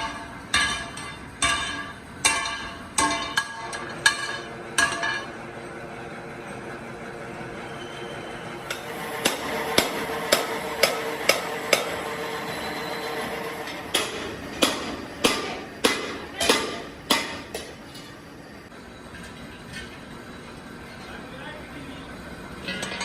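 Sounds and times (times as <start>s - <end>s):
hammer striking metal: 0.0s - 5.4s, 8.6s - 18.2s.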